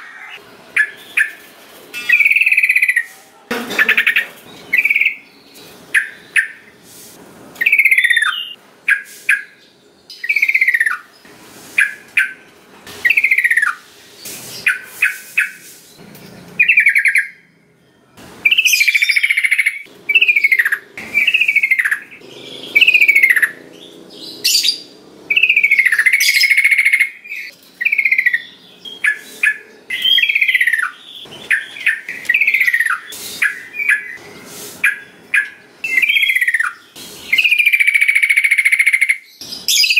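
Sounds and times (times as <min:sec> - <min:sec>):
bird singing whistled phrases: 0:07.6 - 0:11.1, 0:18.4 - 0:23.6, 0:24.4 - 0:34.2, 0:34.8 - 0:39.9.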